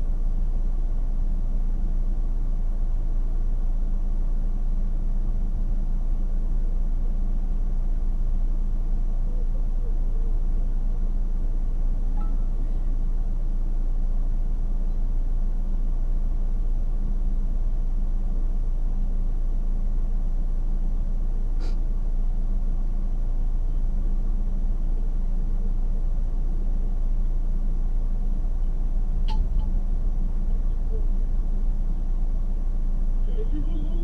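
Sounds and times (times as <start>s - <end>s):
car cabin rumble: 28.3s - 34.0s.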